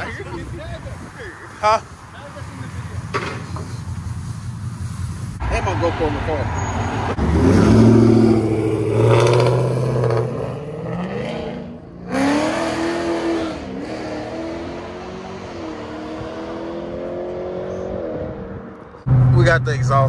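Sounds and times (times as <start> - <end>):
car engine revving: 5.4 - 20.0.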